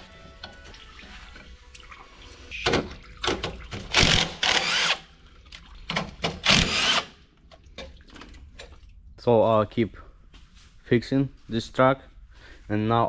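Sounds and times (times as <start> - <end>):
power tool bursts: 3.9 - 5.0, 6.4 - 7.2.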